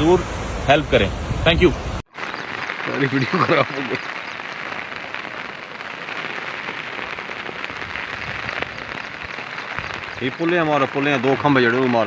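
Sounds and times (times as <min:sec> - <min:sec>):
rushing water: 0:00.0 - 0:03.3.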